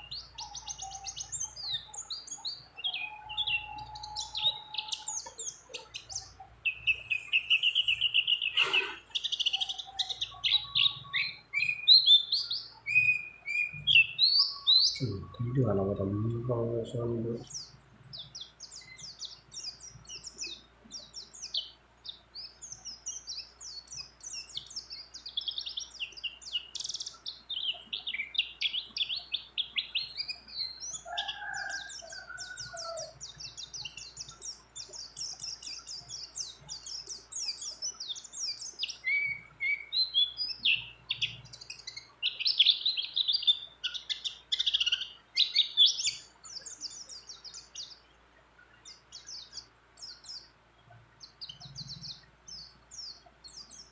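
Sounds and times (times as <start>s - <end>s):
bird singing rapid chirps and trills: 0.0s - 53.9s
lower bird warble: 2.2s - 11.8s.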